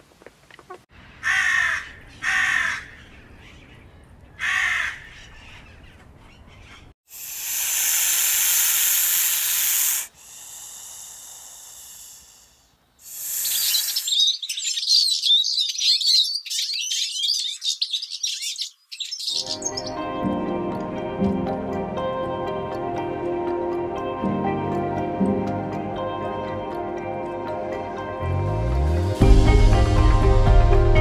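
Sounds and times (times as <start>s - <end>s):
harsh bird calls: 1.1s - 6.9s, 11.8s - 20.1s
rattlesnake rattling: 7.1s - 14.1s.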